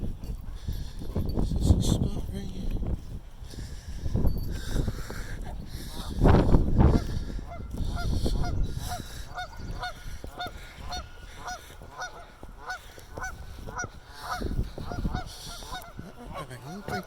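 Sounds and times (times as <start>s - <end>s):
waterfowl honking: 6.9s - 17.0s.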